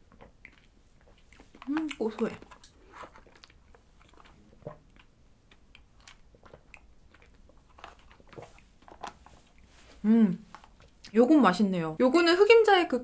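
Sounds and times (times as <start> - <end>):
chewing mouth sounds: 0.0 - 9.7.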